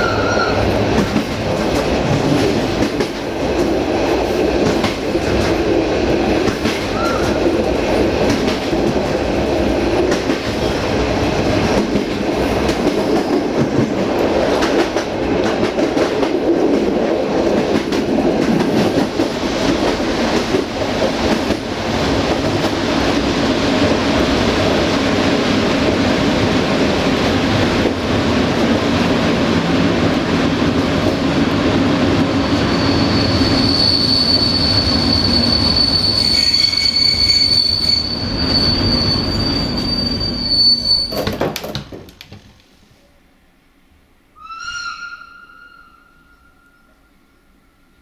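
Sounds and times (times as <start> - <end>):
train rumbling on rails: 0.0 - 41.8
wheel squeal: 32.4 - 41.4.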